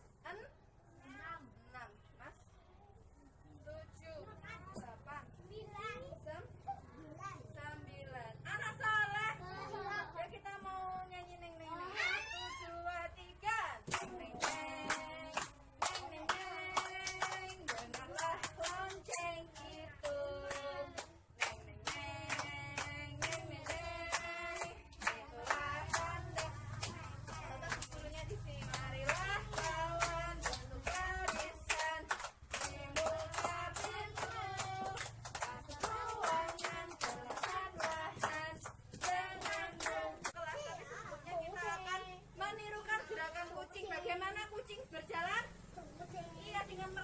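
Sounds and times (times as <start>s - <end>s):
woman singing: 12.7s - 40.6s
hands clapping: 13.9s - 20.2s
children singing: 13.9s - 40.3s
hands clapping rhythmically: 13.9s - 40.4s.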